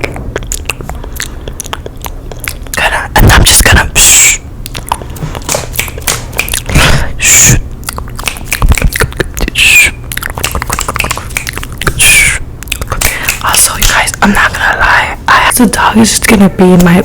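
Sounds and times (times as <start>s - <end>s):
wet mouth clicks and smacks: 0.0s - 14.6s.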